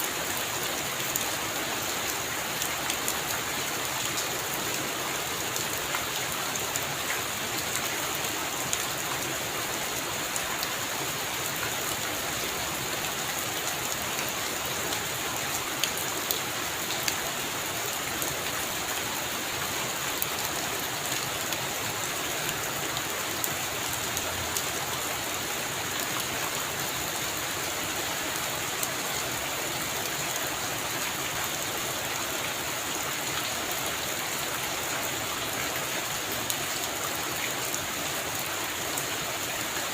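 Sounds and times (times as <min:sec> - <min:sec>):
heavy rain on a roof: 0:00.0 - 0:39.9.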